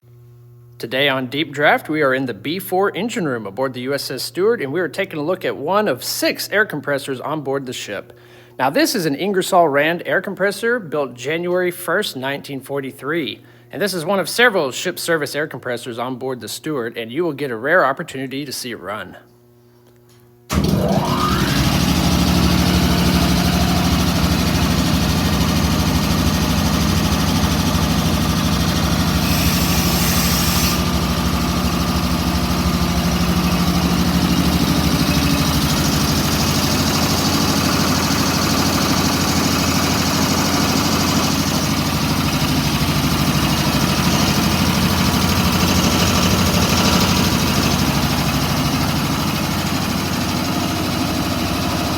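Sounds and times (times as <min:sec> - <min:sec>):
air compressor running: 0:20.5 - 0:51.9
high hiss: 0:29.2 - 0:30.9.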